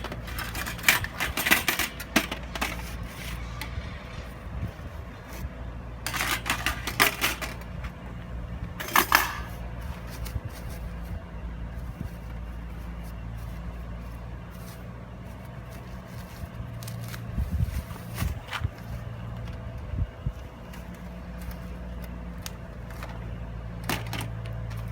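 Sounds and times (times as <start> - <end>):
metal parts clinking and clattering: 0.0 - 5.4, 6.0 - 8.0, 8.8 - 11.1, 20.7 - 24.9
steady low hum: 0.0 - 24.9.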